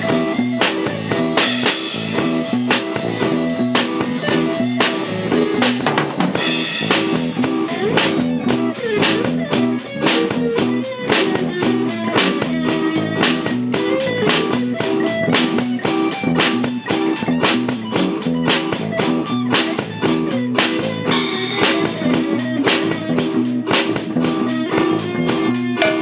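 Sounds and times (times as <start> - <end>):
bass guitar: 0.0 - 26.0
drum kit beat: 0.0 - 26.0
electric guitar: 0.0 - 26.0.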